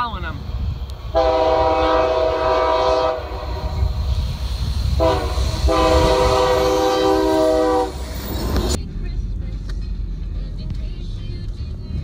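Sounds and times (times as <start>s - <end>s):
low rumble: 0.2s - 12.0s
locomotive air horn blasts: 1.1s - 3.9s, 5.0s - 8.4s.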